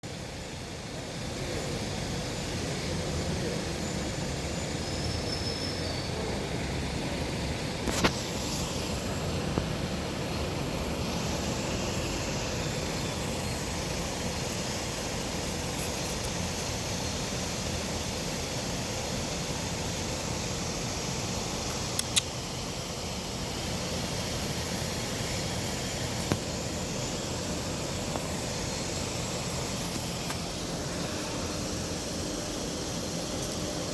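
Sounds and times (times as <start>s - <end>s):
outdoor rumble and hiss: 0.0s - 33.9s
sharp clicks: 21.7s - 22.4s.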